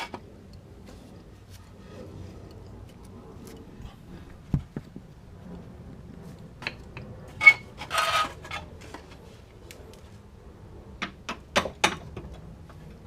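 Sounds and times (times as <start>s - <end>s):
rattling scrape: 7.3s - 9.0s.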